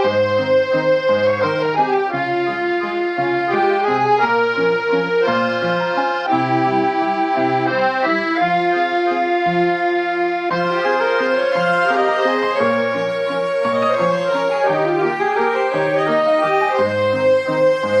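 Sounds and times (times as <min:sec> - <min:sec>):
accordion melody: 0:00.0 - 0:18.0
bass notes: 0:00.0 - 0:18.0.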